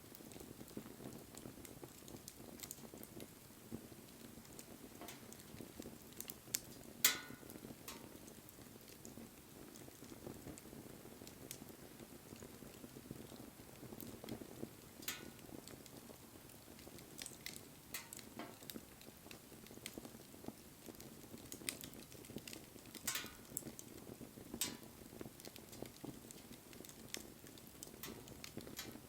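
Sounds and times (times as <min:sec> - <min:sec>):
fire crackles and pops: 0:00.0 - 0:29.0
flames rustling: 0:00.0 - 0:29.0.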